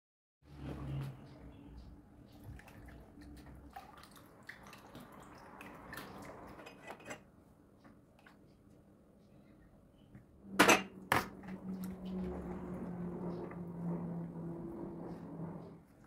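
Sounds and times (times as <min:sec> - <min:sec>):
dishes and utensils clinking: 0:06.6 - 0:07.3, 0:10.6 - 0:11.3.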